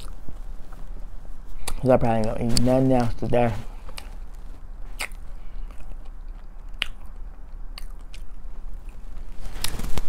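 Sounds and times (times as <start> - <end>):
person chewing with wet clicks: 0.0 - 0.2, 4.9 - 9.0.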